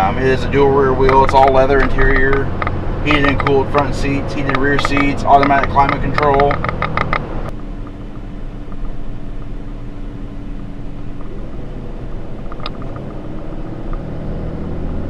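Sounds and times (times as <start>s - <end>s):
diesel engine and tyres rumbling: 0.0s - 15.0s
faint hum rising in pitch: 7.3s - 15.0s.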